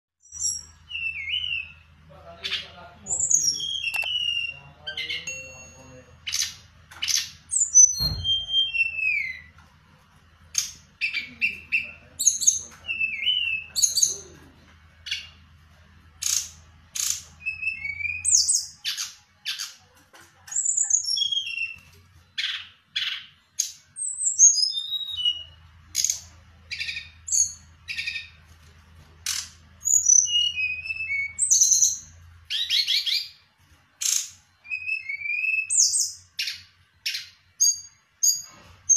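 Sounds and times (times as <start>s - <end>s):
songbird chirping and whistling: 0.2s - 9.6s, 10.5s - 14.4s, 15.0s - 15.4s, 16.2s - 19.8s, 20.5s - 28.4s, 29.2s - 38.9s
thump: 8.0s - 8.5s.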